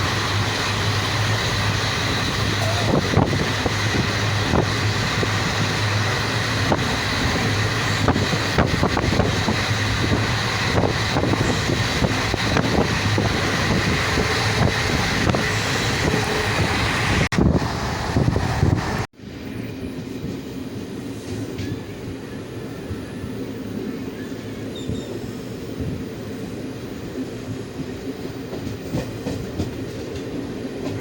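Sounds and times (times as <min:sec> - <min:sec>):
wheels clacking on track: 0:00.0 - 0:17.3, 0:27.5 - 0:31.0
train rumble: 0:00.0 - 0:31.0.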